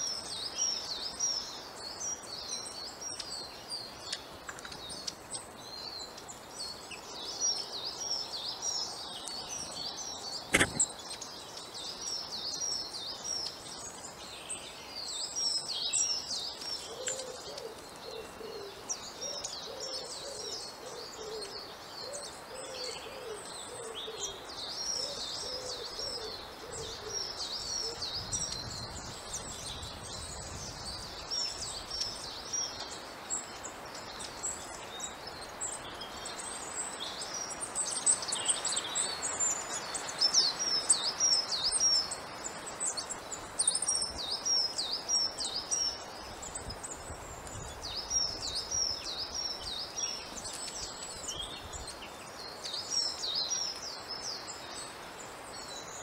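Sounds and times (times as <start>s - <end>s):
small birds chirping: 0.0s - 56.0s
lower repeated bird call: 10.4s - 11.2s.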